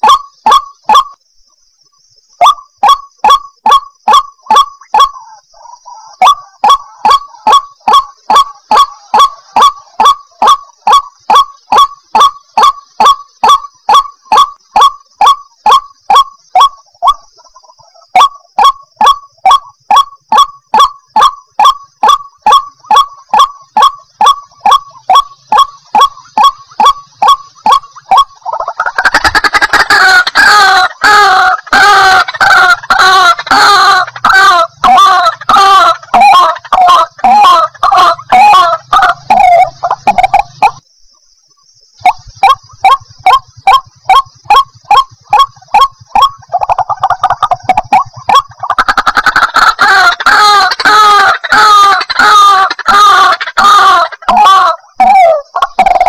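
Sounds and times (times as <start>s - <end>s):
waterhen calling harshly: 2.4s - 40.8s, 42.0s - 56.0s
bird harsh honking call: 48.1s - 55.3s.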